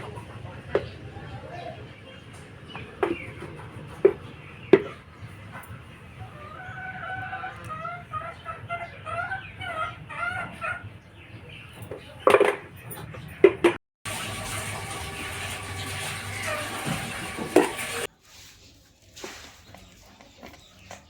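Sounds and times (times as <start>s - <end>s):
chicken clucking: 0.0s - 12.4s.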